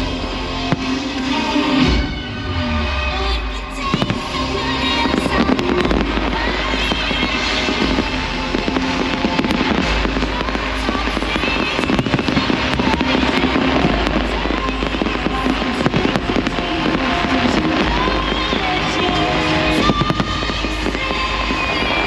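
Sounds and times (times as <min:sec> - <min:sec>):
fireworks bursting and crackling: 0:00.0 - 0:22.0
loud music: 0:00.0 - 0:22.0.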